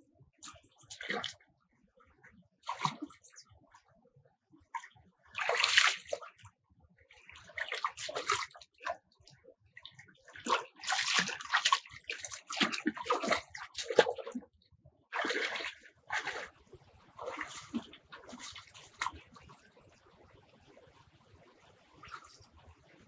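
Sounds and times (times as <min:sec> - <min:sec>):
water splashing and sloshing: 0:00.4 - 0:03.9, 0:04.5 - 0:23.0.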